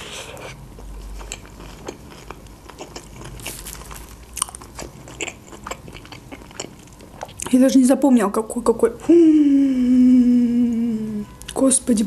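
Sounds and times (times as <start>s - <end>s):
food crunches: 0.8s - 7.6s
wet chewing: 0.8s - 7.6s.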